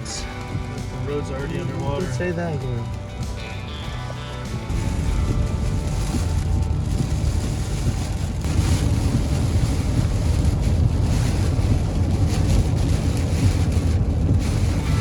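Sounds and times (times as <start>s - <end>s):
storm wind buffeting microphone: 4.6s - 15.0s.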